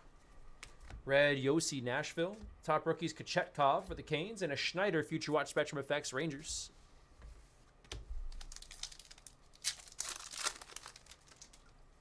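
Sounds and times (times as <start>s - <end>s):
wrapper tearing and crinkling: 8.3s - 11.8s.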